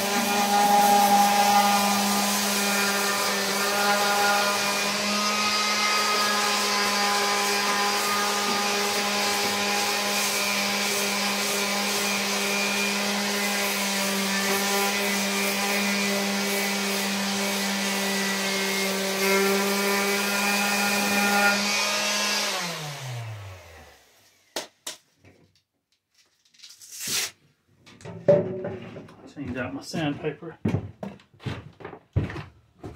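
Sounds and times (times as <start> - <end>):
electric sander sanding metal: 0.0 - 24.5.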